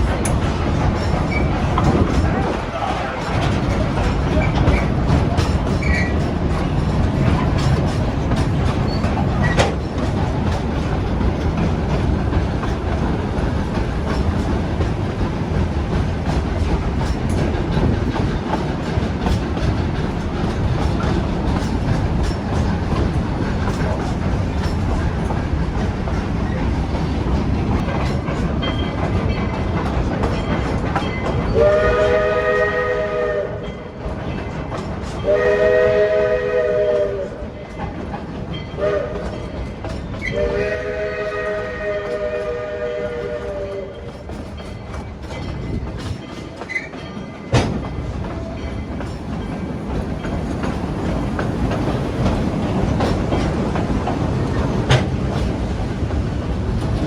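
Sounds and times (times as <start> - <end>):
train cars rumbling: 0.0 - 57.0
locomotive whistle blasts: 31.5 - 33.6, 35.2 - 37.4, 38.8 - 39.2, 40.3 - 43.9.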